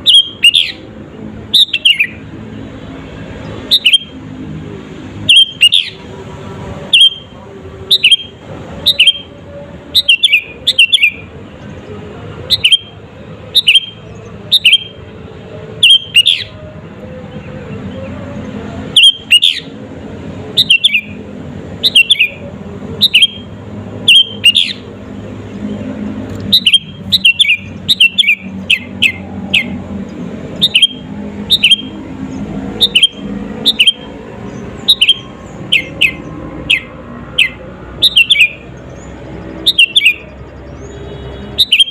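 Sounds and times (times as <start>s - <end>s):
bulbul whistled song: 0.0s - 0.8s, 1.5s - 2.2s, 3.7s - 4.1s, 5.3s - 6.0s, 6.9s - 7.3s, 7.9s - 9.3s, 9.9s - 11.3s, 12.5s - 15.0s, 15.8s - 16.6s, 19.0s - 19.7s, 20.5s - 21.2s, 21.8s - 22.4s, 23.0s - 24.9s, 26.5s - 29.8s, 30.6s - 32.0s, 32.7s - 34.1s, 34.8s - 39.1s, 39.7s - 40.9s, 41.6s - 41.9s.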